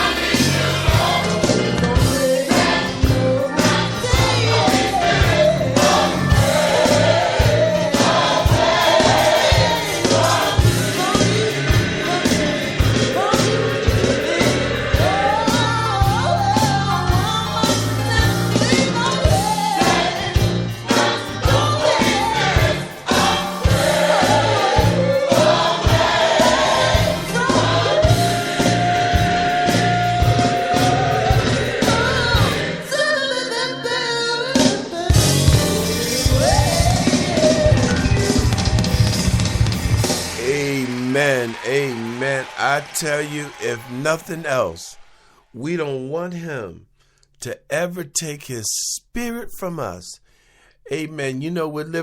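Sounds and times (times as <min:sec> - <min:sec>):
choir singing gospel song: 0:00.0 - 0:45.3
band with steady beat: 0:35.2 - 0:41.0.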